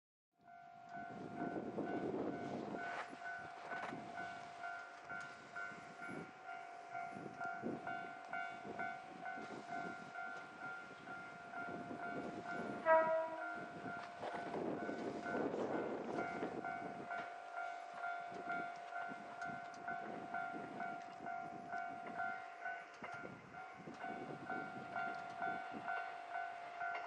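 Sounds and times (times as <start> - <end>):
train horn: 12.2 - 16.4.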